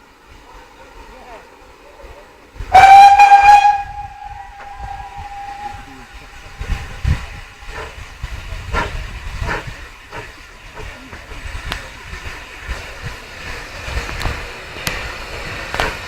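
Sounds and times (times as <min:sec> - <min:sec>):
steady steam hiss: 0:00.0 - 0:16.0
steam locomotive exhaust chuffs: 0:00.0 - 0:16.0
steam whistle: 0:02.7 - 0:07.2.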